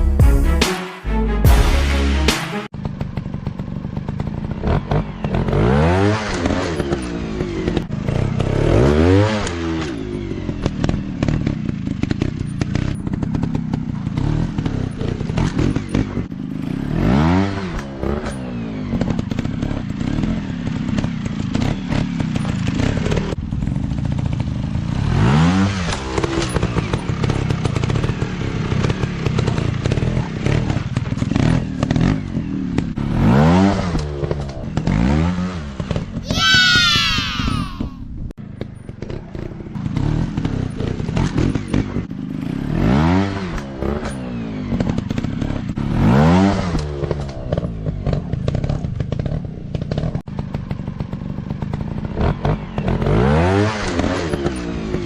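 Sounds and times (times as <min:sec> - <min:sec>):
dirt bike engines revving: 0:25.0 - 0:38.0.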